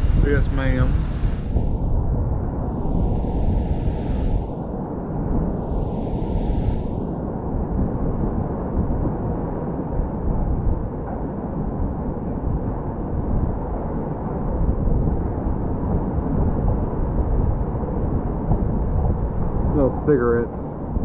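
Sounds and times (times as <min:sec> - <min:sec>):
low rumbling noise: 0:00.0 - 0:13.7.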